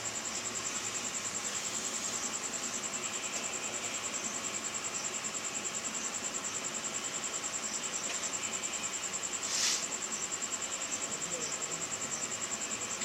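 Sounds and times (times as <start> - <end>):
cricket trilling: 0.0 - 13.0
short hiss: 9.4 - 10.0.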